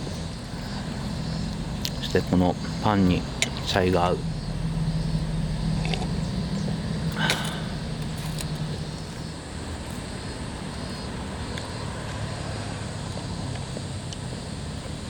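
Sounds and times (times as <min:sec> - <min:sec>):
distant motor droning: 0:00.0 - 0:15.0
faint clicks: 0:00.1 - 0:10.0.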